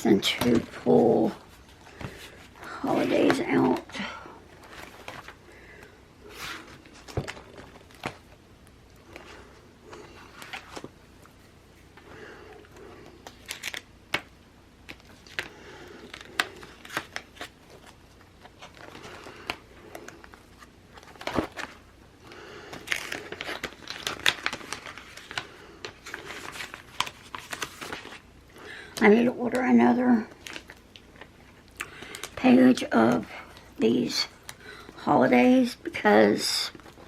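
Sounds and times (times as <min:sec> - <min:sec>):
paper crinkling and rustling: 0:00.2 - 0:08.4, 0:09.0 - 0:11.4, 0:12.8 - 0:21.9, 0:22.6 - 0:28.3, 0:30.3 - 0:32.4.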